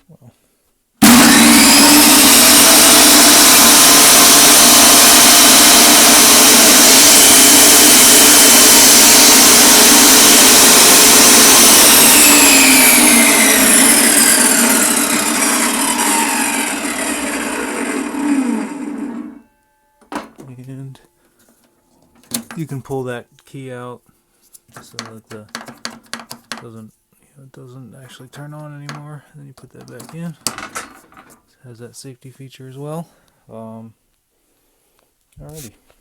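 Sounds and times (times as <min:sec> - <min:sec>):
table saw running: 0:01.0 - 0:19.4.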